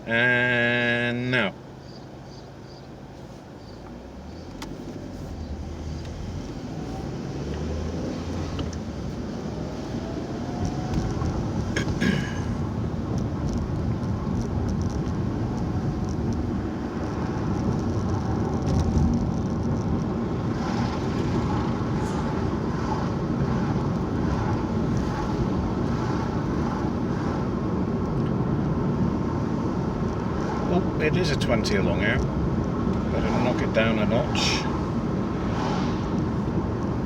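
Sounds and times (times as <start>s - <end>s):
car engine and road noise: 0.0s - 37.0s
faint rattles and clicks: 13.1s - 16.5s.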